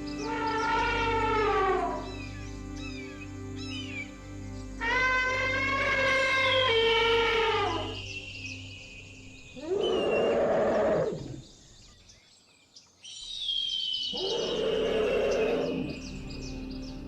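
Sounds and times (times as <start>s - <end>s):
lion roaring: 0.2s - 2.0s, 4.8s - 8.0s, 9.6s - 11.5s, 14.2s - 16.0s.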